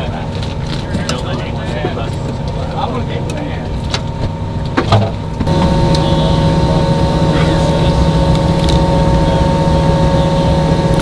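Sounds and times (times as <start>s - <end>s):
aircraft machinery drone: 5.3s - 11.0s.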